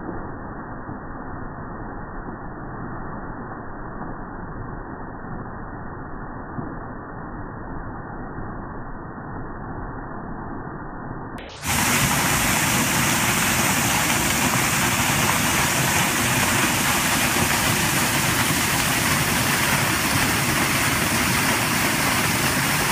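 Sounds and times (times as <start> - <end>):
waterfall rushing: 11.5 - 22.9.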